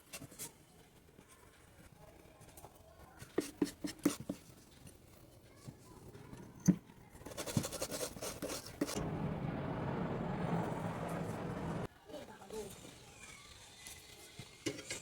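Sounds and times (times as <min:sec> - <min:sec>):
low hum: 0:09.0 - 0:11.9
steady rushing noise: 0:09.0 - 0:11.9.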